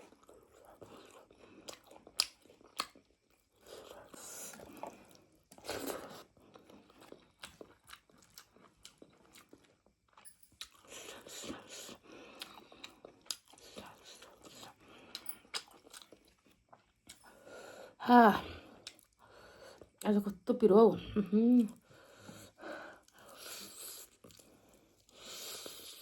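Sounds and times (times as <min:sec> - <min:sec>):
chewing tough meat: 0:00.0 - 0:17.3.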